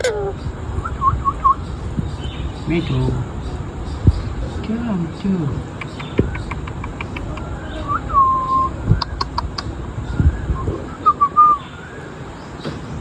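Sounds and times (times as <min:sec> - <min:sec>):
parrot chirps: 0:05.8 - 0:09.8.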